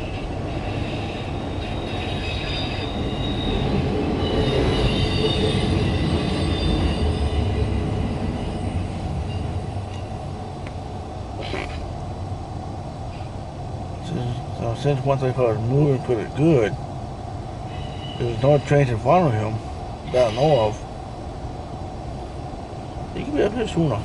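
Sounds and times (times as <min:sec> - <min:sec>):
faint high wheel squeal: 0:00.0 - 0:10.2, 0:17.6 - 0:19.5, 0:20.1 - 0:20.8
freight train rumbling on rails: 0:00.0 - 0:24.0.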